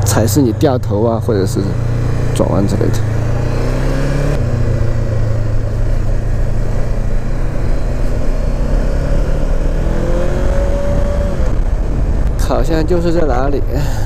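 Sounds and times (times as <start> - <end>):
motorcycle engine running: 0.0 - 13.8
wind rush on microphone: 4.4 - 14.0.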